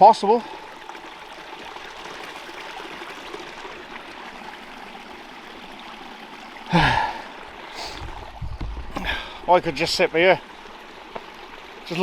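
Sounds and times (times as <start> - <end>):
stream rushing: 0.0 - 12.0
man sighing: 6.7 - 7.3, 8.9 - 9.4.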